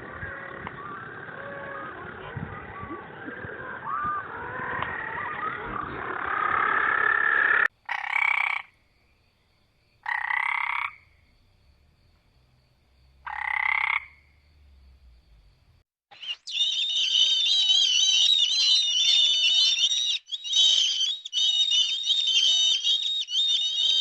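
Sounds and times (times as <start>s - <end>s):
frog chorus: 0.0s - 8.8s, 10.0s - 11.2s, 13.2s - 14.4s, 16.2s - 24.0s
single frog croaks: 6.1s - 8.8s, 10.0s - 11.2s, 13.2s - 14.4s.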